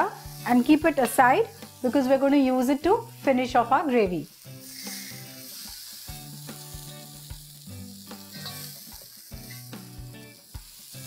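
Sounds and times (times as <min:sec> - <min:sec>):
food sizzling in a pan: 0:00.0 - 0:11.0
spatula scraping a pan: 0:04.6 - 0:06.0.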